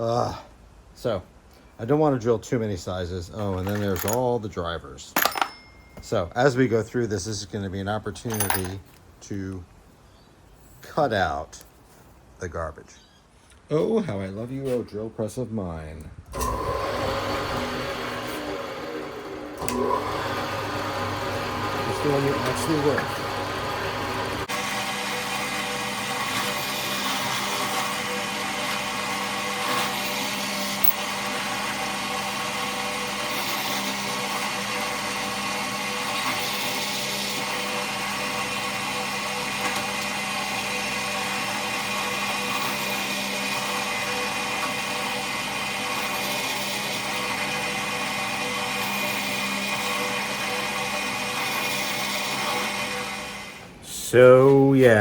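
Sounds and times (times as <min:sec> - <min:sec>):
drill press motor whining: 0:16.4 - 0:53.7.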